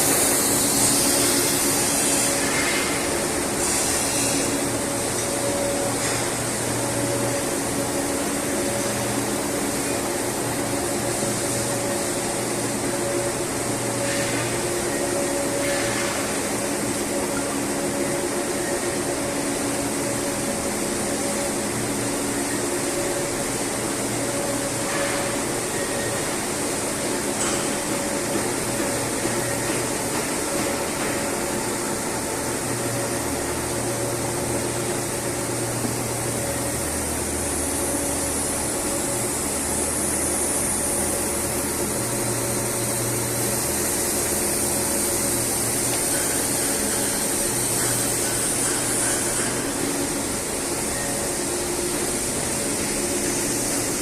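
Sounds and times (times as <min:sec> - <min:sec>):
industrial machinery hiss and hum: 0:00.0 - 0:54.0.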